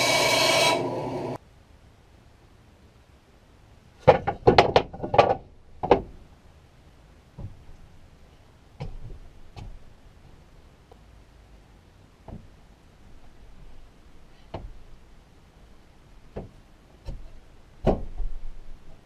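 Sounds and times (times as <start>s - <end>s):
wooden knocks: 4.0s - 6.2s, 8.8s - 9.8s, 12.2s - 12.5s, 14.5s - 14.8s, 16.3s - 18.6s.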